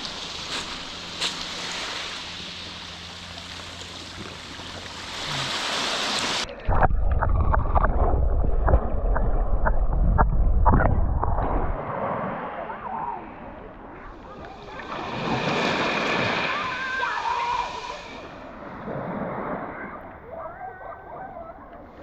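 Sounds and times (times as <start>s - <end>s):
small splashes: 0.0s - 9.5s
water rushing around kayak: 0.0s - 22.0s.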